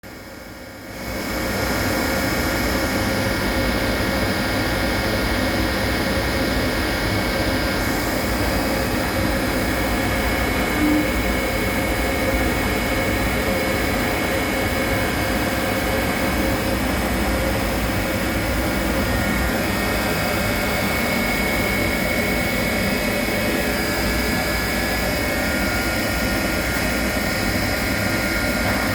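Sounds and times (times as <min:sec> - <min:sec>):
cnc machine running: 0:00.1 - 0:28.9
machine whining tones: 0:06.9 - 0:28.9.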